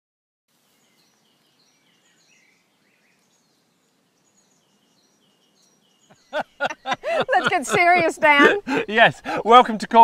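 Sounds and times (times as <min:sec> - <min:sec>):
faint steady hiss: 0:00.5 - 0:10.0
small birds chirping and whistling: 0:00.7 - 0:10.0.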